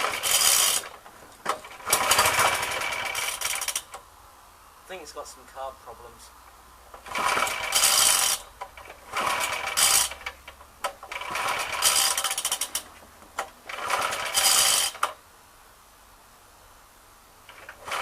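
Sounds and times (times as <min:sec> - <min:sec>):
lawnmower engine being cranked: 0:00.0 - 0:04.0, 0:06.9 - 0:15.2, 0:17.5 - 0:18.0.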